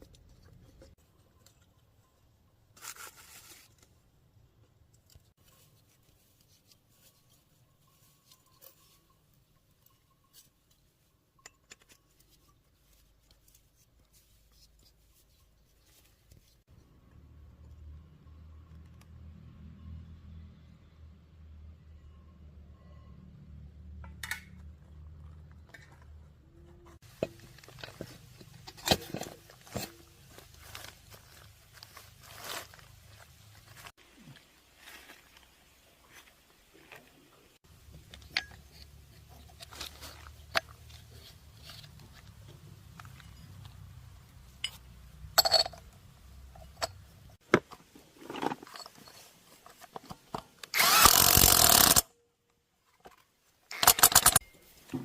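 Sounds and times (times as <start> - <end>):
rustling scrape: 2.7 - 3.9, 27.0 - 34.0
sharp clicks and knocks: 53.7 - 55.0.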